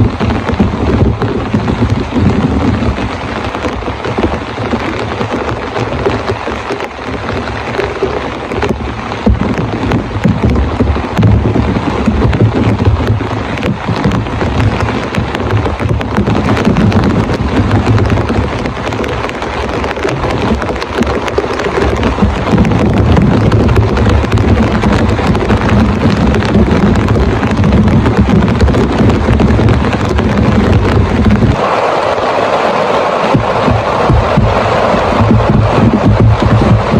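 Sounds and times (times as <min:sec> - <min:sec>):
deep steady rumble: 0:00.0 - 0:36.9
heavy rain falling: 0:00.0 - 0:36.9.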